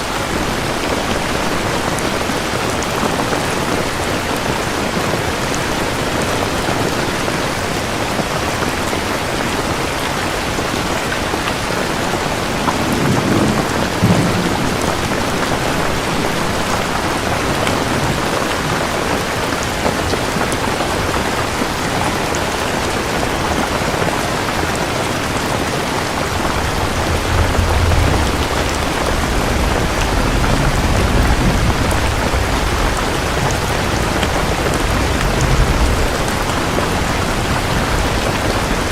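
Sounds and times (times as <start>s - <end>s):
heavy rain: 0.0s - 38.9s
thunder rumbling: 11.9s - 18.3s, 24.4s - 38.9s.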